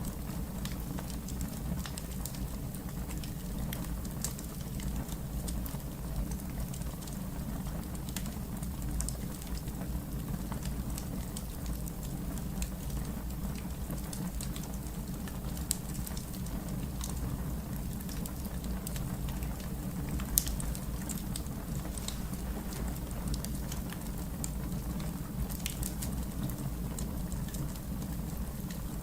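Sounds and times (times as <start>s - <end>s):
fire crackling and popping: 0.0s - 29.0s.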